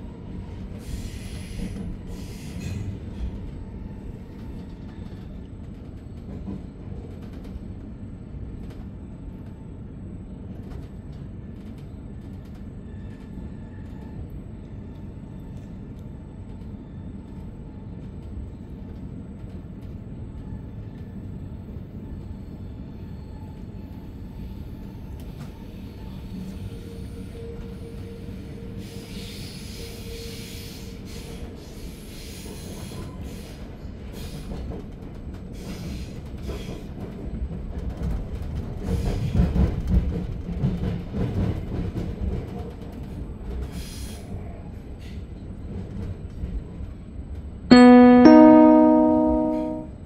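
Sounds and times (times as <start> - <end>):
train wheels rumbling on rails: 0.0 - 47.7
electronic chime: 47.7 - 49.9.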